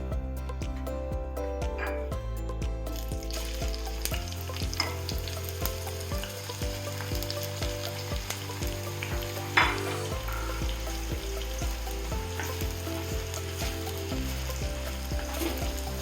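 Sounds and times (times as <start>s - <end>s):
onions sizzling in hot oil: 3.2s - 16.0s.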